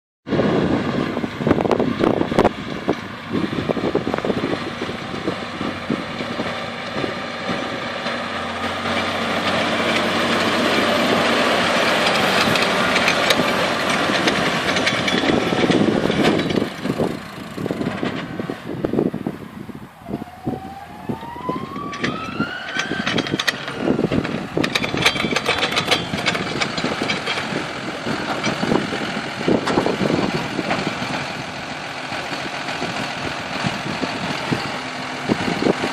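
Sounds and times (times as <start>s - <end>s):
tractor engine running: 0.3s - 35.9s
baler mechanical clatter: 5.3s - 18.5s, 21.6s - 31.4s.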